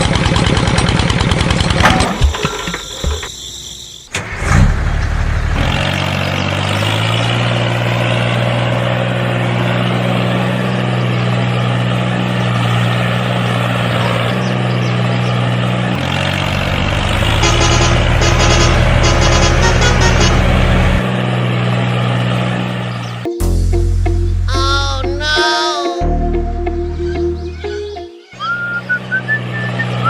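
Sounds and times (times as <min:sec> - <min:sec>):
small engine running: 0:00.0 - 0:03.5, 0:05.3 - 0:23.3.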